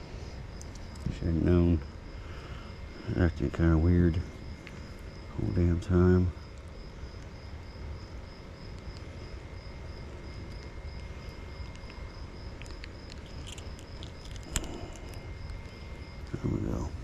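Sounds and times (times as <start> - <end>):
insect chirping: 0.0 - 17.0
low steady rumble: 0.0 - 17.0.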